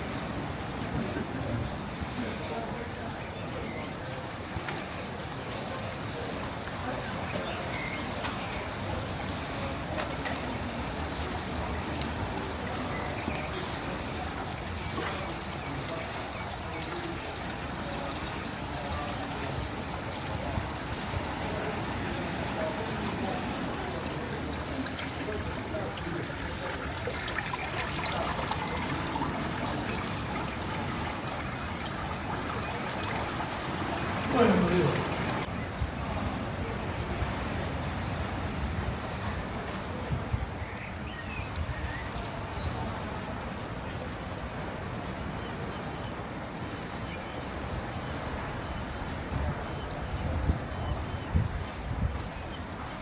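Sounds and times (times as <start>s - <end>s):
rain falling: 0.0s - 35.5s, 36.7s - 53.0s
water dripping: 7.0s - 35.5s
water trickling: 10.3s - 35.5s.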